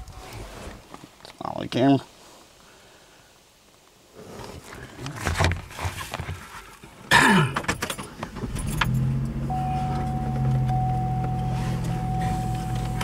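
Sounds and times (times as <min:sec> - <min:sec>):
car engine starting and idling: 0:07.9 - 0:13.0.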